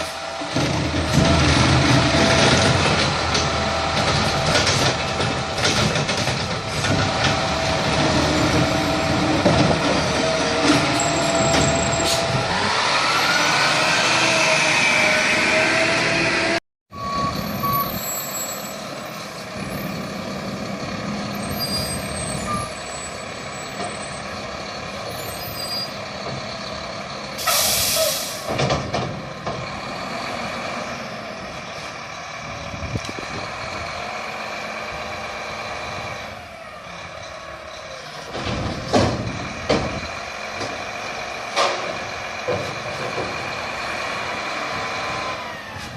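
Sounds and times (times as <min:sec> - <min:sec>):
truck diesel engine revving: 0:00.0 - 0:05.6, 0:06.6 - 0:17.1
air brakes hissing: 0:27.4 - 0:28.6.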